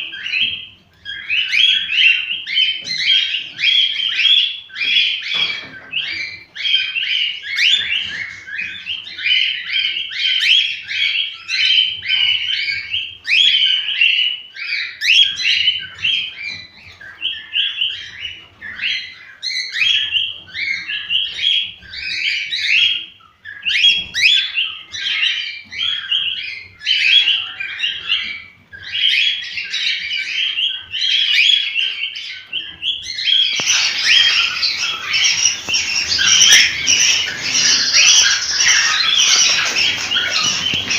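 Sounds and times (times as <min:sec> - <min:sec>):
cockatiels warbling and chirping: 0:00.1 - 0:40.9
harsh squawking calls: 0:33.4 - 0:40.9.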